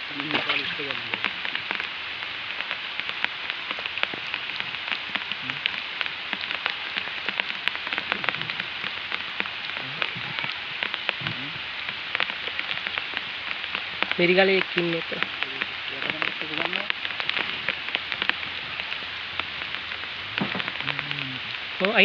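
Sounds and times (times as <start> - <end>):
faint voices: 0.0 - 1.5, 5.4 - 5.7, 9.7 - 11.7, 14.2 - 19.4, 20.0 - 22.0
hiss of water or rain: 0.0 - 22.0.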